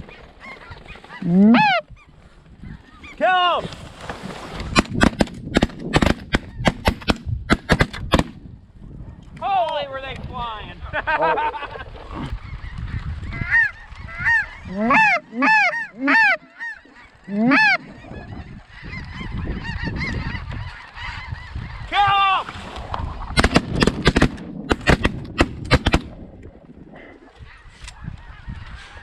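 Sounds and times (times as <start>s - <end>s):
snow geese honking: 0.0s - 2.1s, 12.4s - 21.9s
shotgun blasts: 4.8s - 8.4s, 23.4s - 26.1s.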